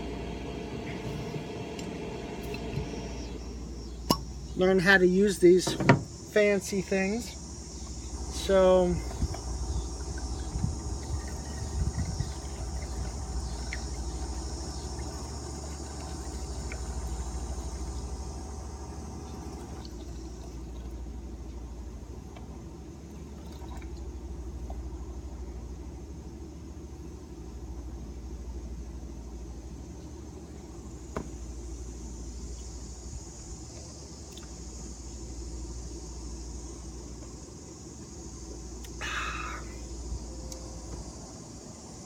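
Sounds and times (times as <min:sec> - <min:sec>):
low even rumble: 0:07.6 - 0:22.0
wine pouring from a bottle: 0:09.2 - 0:21.0.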